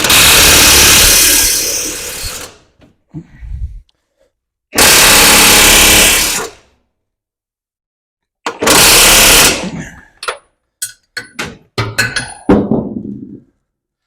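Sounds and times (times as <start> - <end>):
power tool driving bolts: 0.0 - 2.6, 4.8 - 6.6, 8.4 - 9.6.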